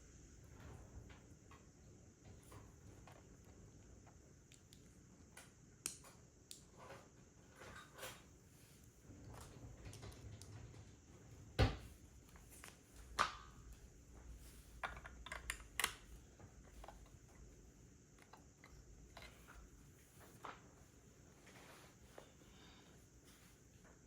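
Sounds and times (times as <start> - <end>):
plastic bricks clicking together: 14.8 - 16.1.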